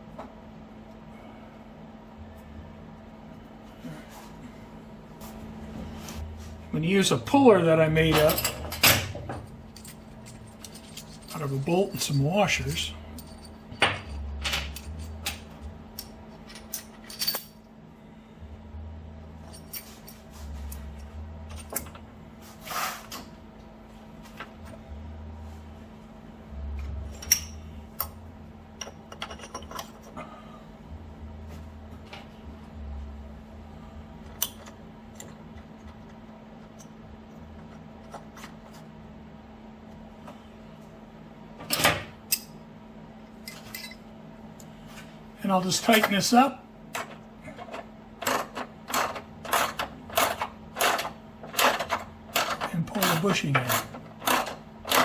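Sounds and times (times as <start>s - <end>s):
metal scrape: 22.4s - 23.2s.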